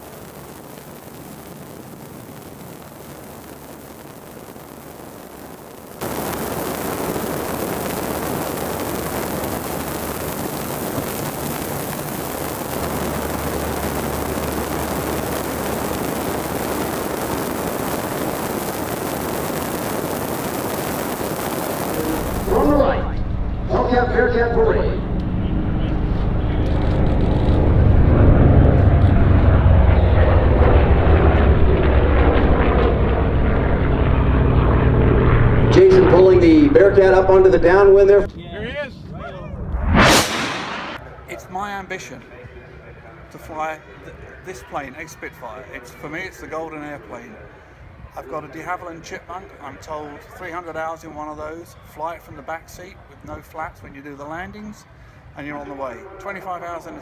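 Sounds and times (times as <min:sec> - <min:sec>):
rushing wind: 0:00.0 - 0:41.0
aircraft engine roar: 0:00.0 - 0:41.4, 0:45.5 - 0:51.0
low even drone: 0:06.1 - 0:18.7, 0:21.4 - 0:38.3, 0:39.0 - 0:41.0
propeller planes flying past: 0:06.4 - 0:41.3.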